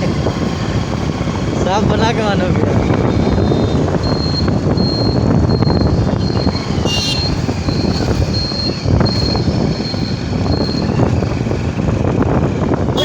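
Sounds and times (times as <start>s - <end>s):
motorcycle engine rumble: 0.0s - 13.0s
wind noise on microphone: 0.0s - 13.0s.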